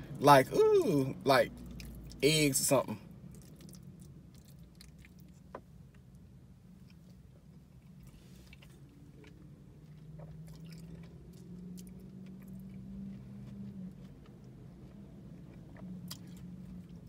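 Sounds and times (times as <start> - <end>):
low drawn-out hum: 0.0 - 17.0
person chewing food: 3.2 - 6.0, 6.8 - 17.0.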